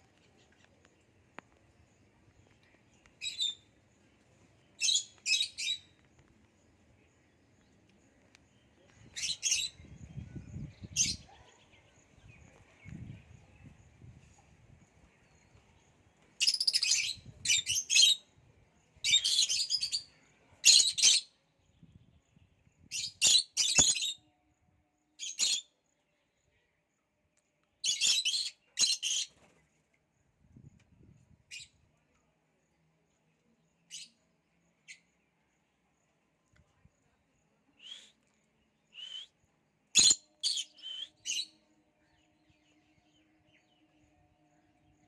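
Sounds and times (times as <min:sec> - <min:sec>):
lovebirds chirping: 0:40.0 - 0:41.6.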